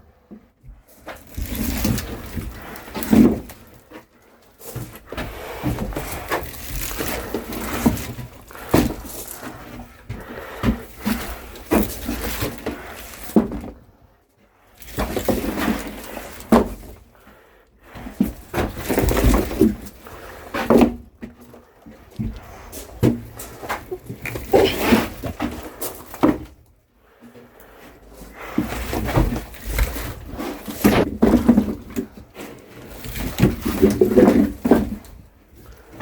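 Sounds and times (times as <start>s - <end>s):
wooden logs knocking: 4.7s - 13.8s, 18.2s - 21.6s.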